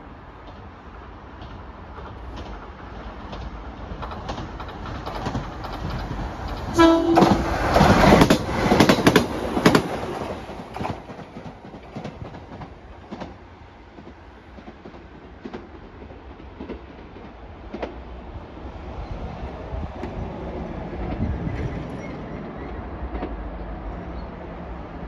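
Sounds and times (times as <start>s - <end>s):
train wheels clacking over rail joints: 0.4s - 18.1s, 20.0s - 23.7s
train horn blast: 6.7s - 7.6s.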